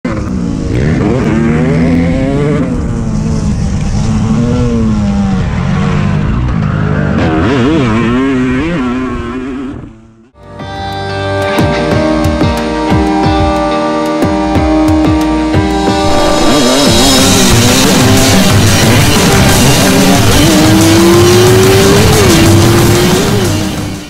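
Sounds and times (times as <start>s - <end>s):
motocross bike engines revving: 0.1s - 10.2s, 16.1s - 24.0s.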